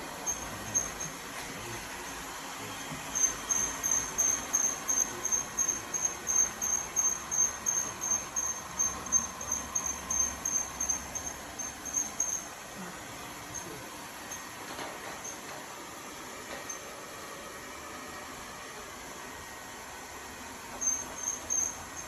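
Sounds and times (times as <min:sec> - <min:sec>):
high-pitched chirping: 0:03.2 - 0:12.4.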